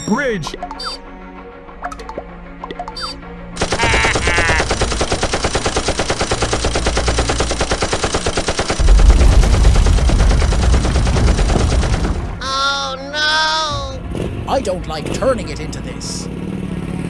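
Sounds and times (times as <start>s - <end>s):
rapid machine-gun fire: 3.6s - 12.4s
deep rumble: 8.8s - 12.6s.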